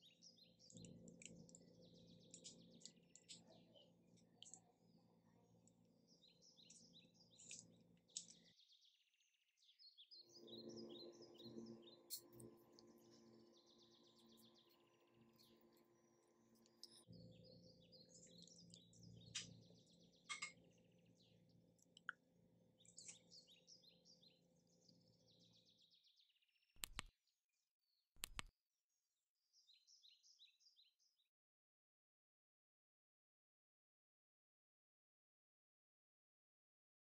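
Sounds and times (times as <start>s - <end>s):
faint birds chirping: 0.0s - 27.1s, 29.5s - 31.2s
short clicks: 26.8s - 27.1s, 28.2s - 28.5s.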